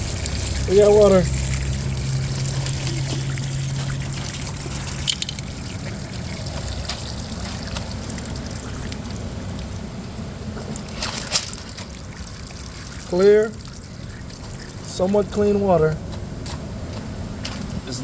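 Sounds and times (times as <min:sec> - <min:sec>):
water trickling from valve: 0:00.0 - 0:10.0, 0:10.8 - 0:15.3
low hum: 0:00.0 - 0:17.9.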